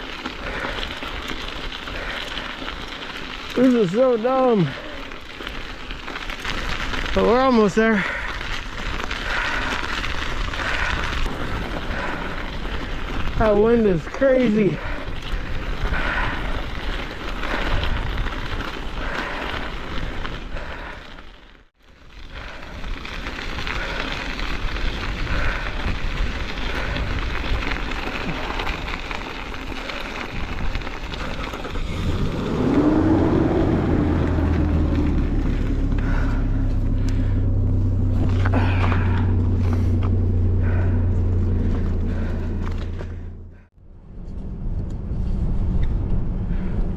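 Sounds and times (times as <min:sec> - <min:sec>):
wind buffeting microphone: 0:08.2 - 0:20.9, 0:22.5 - 0:42.3.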